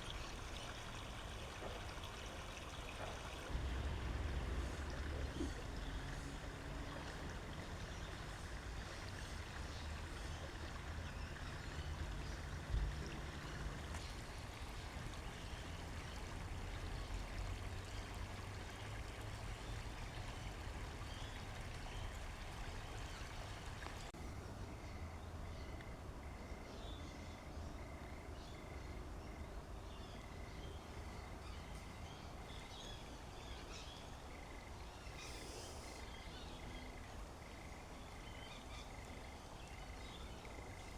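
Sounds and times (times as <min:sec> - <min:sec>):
creek water running: 0:00.0 - 0:24.6, 0:29.8 - 0:40.9
low rumble: 0:03.5 - 0:06.4.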